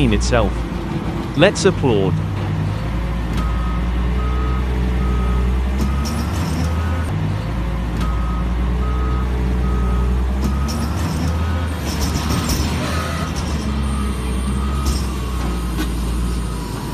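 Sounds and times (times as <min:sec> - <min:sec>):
diesel engine under load: 0:00.0 - 0:16.9
backup alarm beeping: 0:01.4 - 0:07.1, 0:08.0 - 0:11.7, 0:13.2 - 0:15.7.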